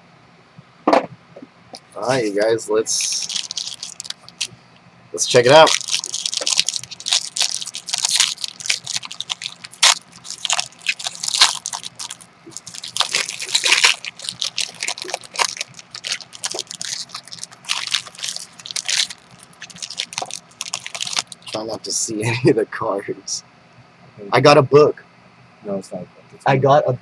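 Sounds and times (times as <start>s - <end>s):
card packaging crinkling and tearing: 2.3s - 4.5s, 5.2s - 21.8s.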